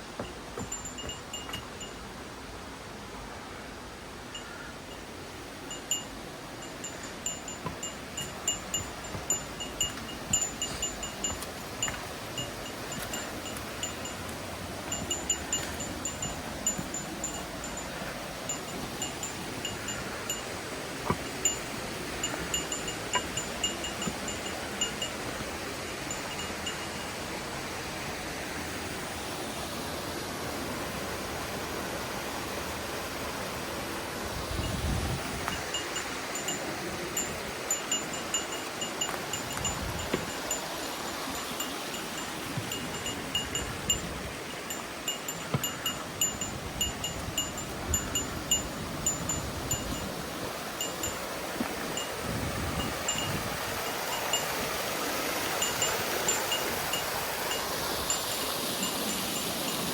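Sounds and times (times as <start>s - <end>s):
rushing water of stream: 0.0s - 59.9s
steady background hiss: 0.0s - 59.9s
small metal bell pinging: 0.2s - 2.0s, 5.7s - 14.2s, 14.9s - 20.5s, 21.1s - 25.2s, 35.6s - 50.1s, 52.8s - 54.5s, 55.6s - 59.8s.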